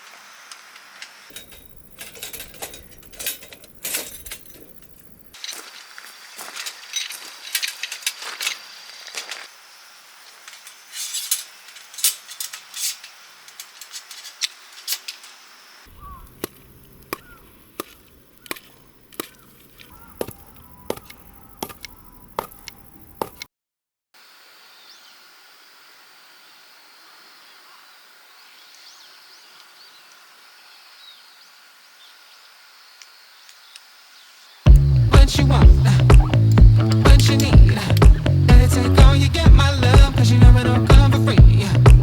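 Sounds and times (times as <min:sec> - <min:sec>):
sharp chopping strikes: 0:16.3 - 0:23.4.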